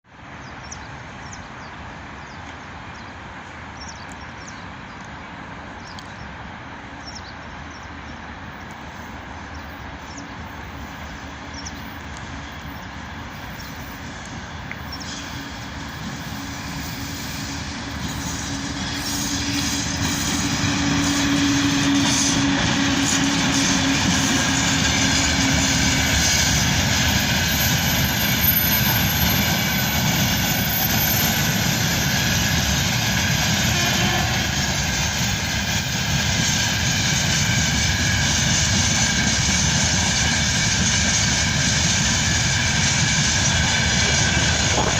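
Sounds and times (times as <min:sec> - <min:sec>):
freight train rumble and wheel noise: 0:00.1 - 0:44.9
locomotive hum: 0:00.1 - 0:44.9.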